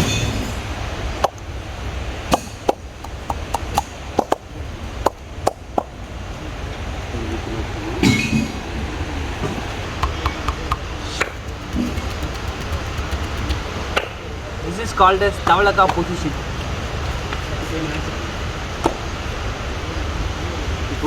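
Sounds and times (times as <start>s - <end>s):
hands slapping on skin: 11.2s - 13.8s.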